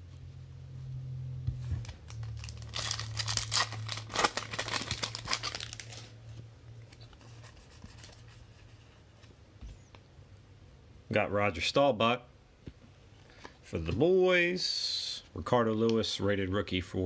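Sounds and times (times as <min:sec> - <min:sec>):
plastic wrapper crinkling and tearing: 0:01.8 - 0:06.2.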